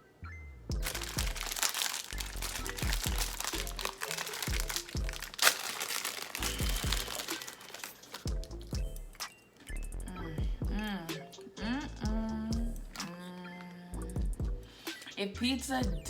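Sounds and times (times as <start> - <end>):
music with deep sliding bass: 0.3 - 1.5, 8.3 - 13.0
crunchy crackers being chewed: 0.8 - 8.3.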